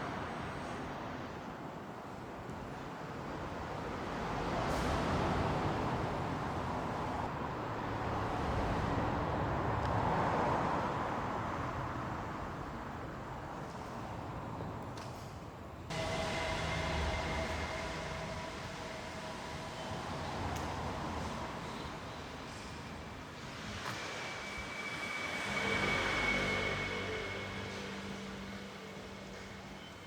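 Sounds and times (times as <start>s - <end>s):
train rumbling past: 0.0s - 13.4s, 15.9s - 30.0s
multi-tone whine over low hum: 15.9s - 30.0s.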